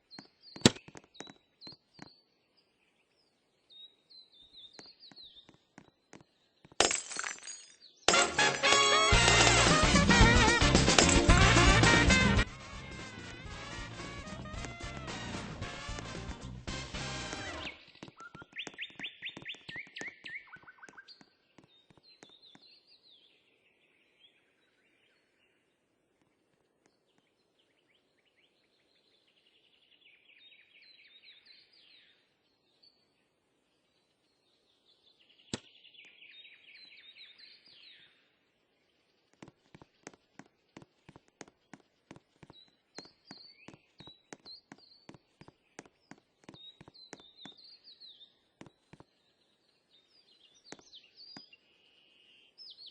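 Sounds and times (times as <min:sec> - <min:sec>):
small birds trilling: 0:17.4 - 0:23.6, 0:38.8 - 0:52.9.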